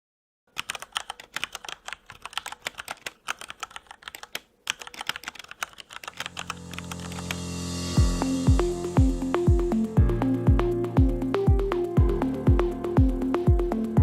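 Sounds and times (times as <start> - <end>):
rapid typing on a keyboard: 0.5 - 7.4
music: 6.2 - 14.0.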